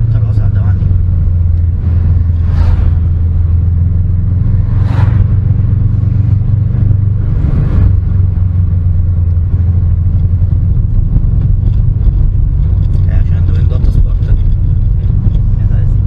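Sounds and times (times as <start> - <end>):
car engine droning: 0.0 - 16.0
road rumble: 0.0 - 16.0
brief whooshes: 2.4 - 3.2, 4.6 - 5.4.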